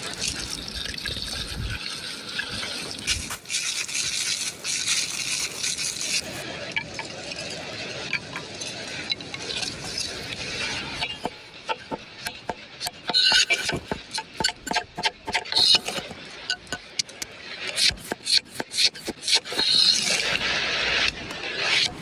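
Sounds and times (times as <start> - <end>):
brushing and scraping: 2.5 - 6.4, 9.6 - 17.0, 17.6 - 22.0
utensils clinking against dishes: 9.7 - 20.4.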